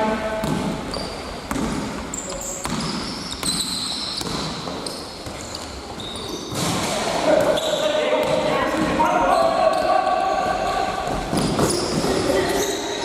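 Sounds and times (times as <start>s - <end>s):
basketball bouncing on court: 0.4s - 5.7s, 8.2s - 9.1s, 11.0s - 12.2s
shoe squeaks on floor: 0.9s - 6.7s, 7.5s - 8.0s, 11.3s - 13.0s.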